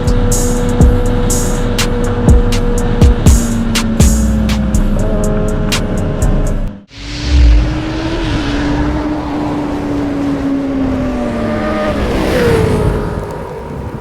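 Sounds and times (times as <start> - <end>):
motorcycle engine running hard: 0.0 - 6.5.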